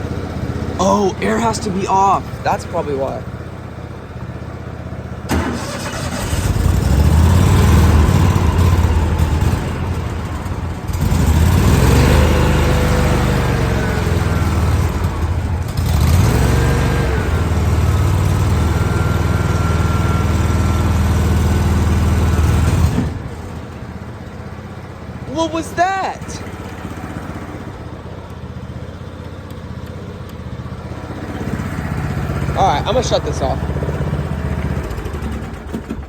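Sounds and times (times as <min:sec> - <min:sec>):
small gasoline engine surging: 0:00.0 - 0:36.0.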